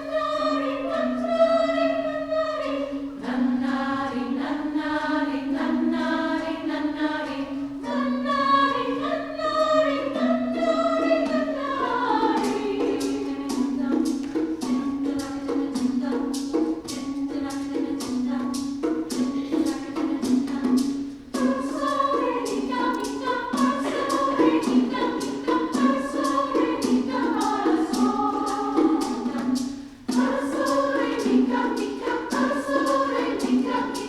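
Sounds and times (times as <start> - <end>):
women's chorus singing: 0.0 - 34.0
sharp percussive strikes: 11.3 - 34.0.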